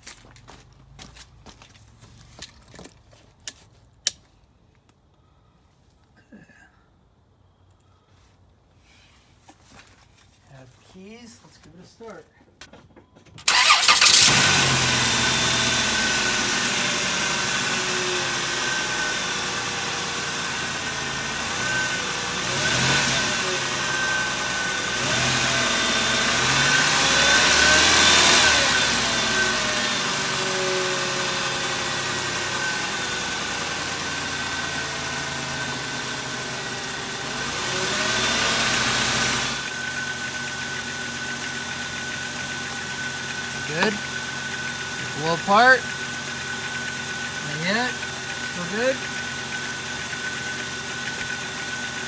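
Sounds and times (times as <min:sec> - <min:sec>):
car engine running: 0:13.4 - 0:52.0.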